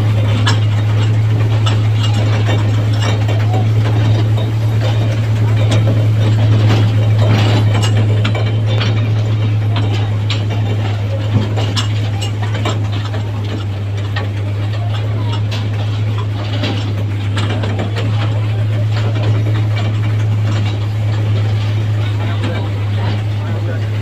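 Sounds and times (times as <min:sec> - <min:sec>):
carriages rattling clicks: 0:00.0 - 0:24.0.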